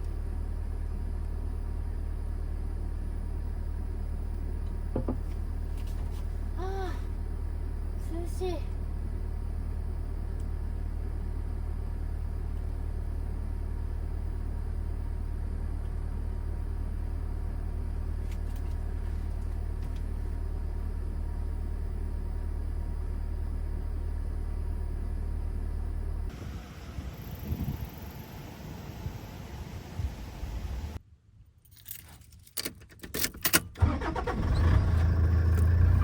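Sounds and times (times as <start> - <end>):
van cabin rumble and hum: 0.0 - 31.0, 31.7 - 36.0.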